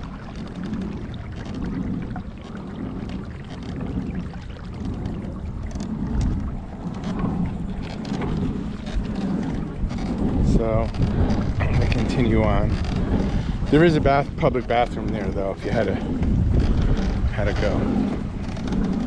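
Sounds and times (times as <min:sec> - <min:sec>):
water splashes and drips: 0:00.0 - 0:11.0
kayak paddle strokes in water: 0:00.0 - 0:19.0
wind rumble on microphone: 0:00.0 - 0:19.0.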